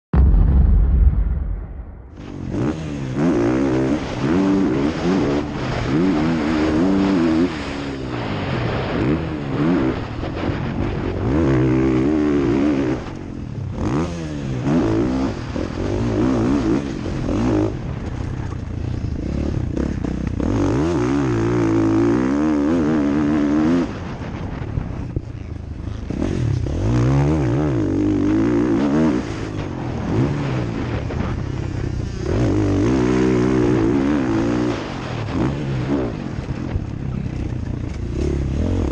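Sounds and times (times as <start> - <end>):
rushing noise: 0.1 - 12.1
motocross bike engine revving: 2.2 - 38.9.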